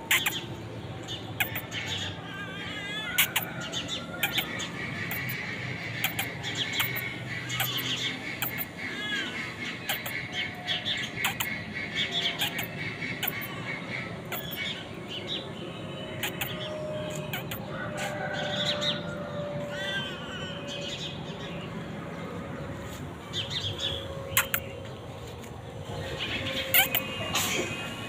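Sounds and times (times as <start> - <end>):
birds chirping and squawking: 0.0 - 28.0
sharp clicks: 24.4 - 24.6.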